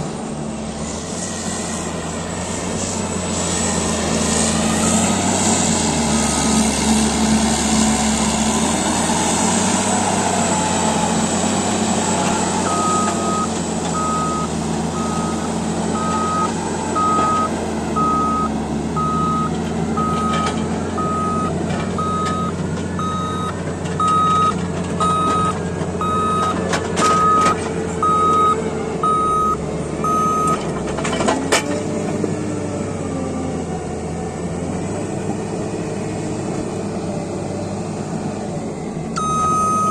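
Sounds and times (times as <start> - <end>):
bulldozer diesel engine running: 0.0 - 39.9
reverse alarm beeping: 12.7 - 30.6, 39.2 - 39.9.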